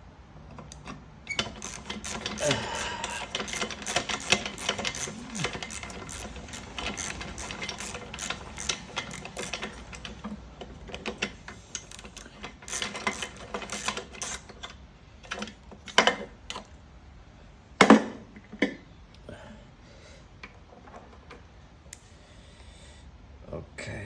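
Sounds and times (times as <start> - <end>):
ratchet wrench clicking: 0.7 - 10.3, 10.9 - 16.6.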